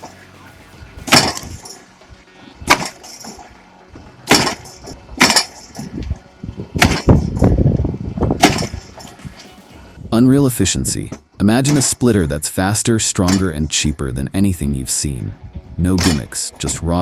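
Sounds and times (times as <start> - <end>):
low rumble: 0.0 - 11.4, 15.1 - 16.0
wood cracking and knocking: 1.0 - 1.6, 8.4 - 9.5.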